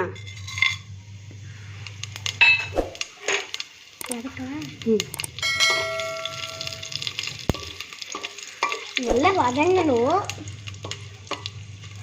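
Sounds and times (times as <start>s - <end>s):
utensils clinking on pan: 0.0s - 0.9s, 2.3s - 4.2s, 5.2s - 11.6s
spices sizzling in hot oil: 0.0s - 12.0s
ringing metallic clang: 5.4s - 7.0s.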